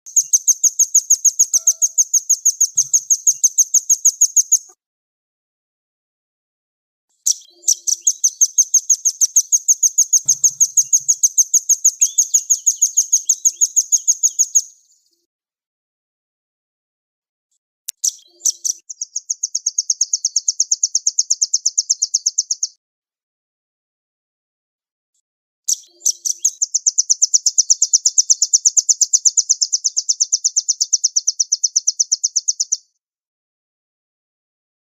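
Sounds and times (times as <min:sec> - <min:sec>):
bird trilling: 0:00.1 - 0:04.7, 0:07.3 - 0:14.6
nuthatch chipping call: 0:01.4 - 0:03.5, 0:10.2 - 0:11.2.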